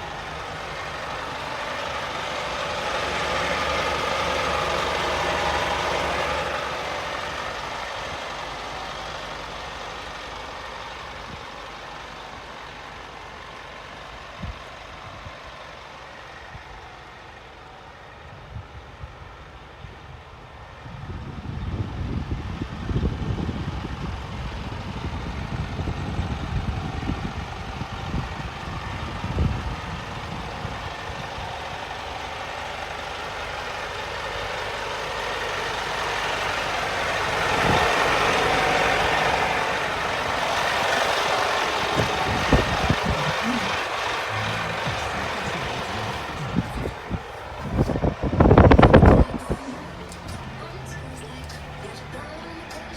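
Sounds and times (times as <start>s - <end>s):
truck diesel engine idling: 0.0s - 52.9s.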